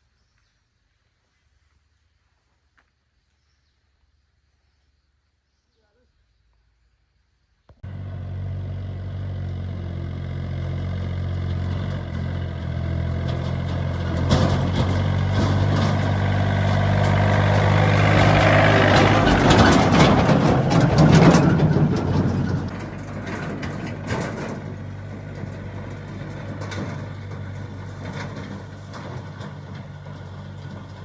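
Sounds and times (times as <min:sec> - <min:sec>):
engine knocks and clanks: 0:07.8 - 0:31.0
heavy engine running: 0:07.8 - 0:31.0.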